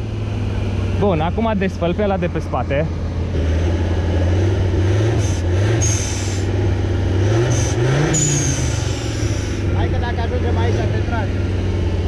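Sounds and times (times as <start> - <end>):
engine revving under load: 0.0 - 12.0
high squeal: 5.3 - 6.5, 7.5 - 9.7.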